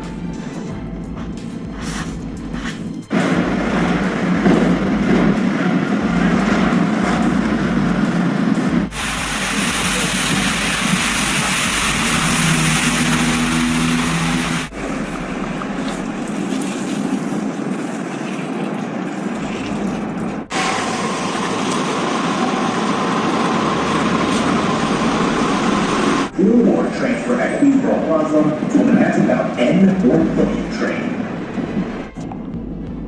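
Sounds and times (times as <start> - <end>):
low engine hum: 0.0 - 18.0
vehicle and road noise: 0.0 - 33.0.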